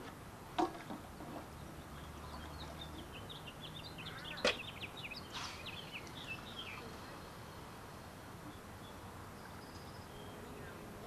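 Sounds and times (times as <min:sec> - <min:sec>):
small birds twittering: 0:01.5 - 0:11.0.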